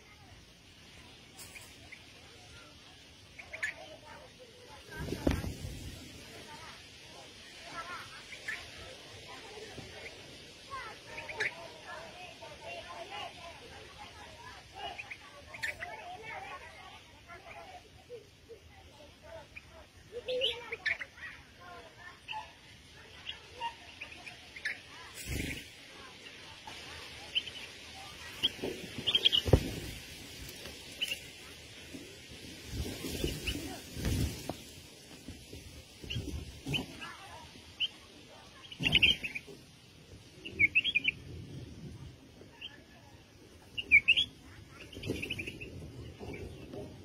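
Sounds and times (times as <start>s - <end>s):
small birds chirping: 0.0s - 47.0s
small bird chirping: 1.2s - 4.1s, 27.2s - 32.0s, 35.9s - 39.6s, 40.4s - 41.2s, 43.6s - 46.8s.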